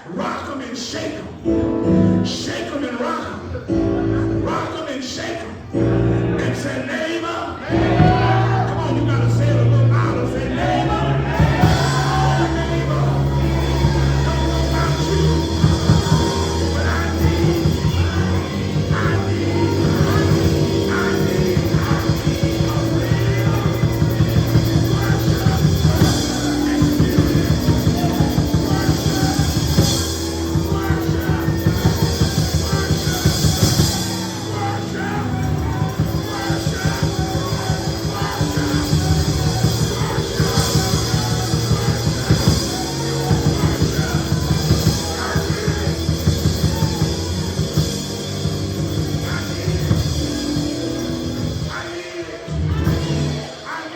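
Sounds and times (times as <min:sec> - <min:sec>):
live band playing up-tempo music: 0:07.7 - 0:53.9
fast drum beat: 0:11.4 - 0:51.8.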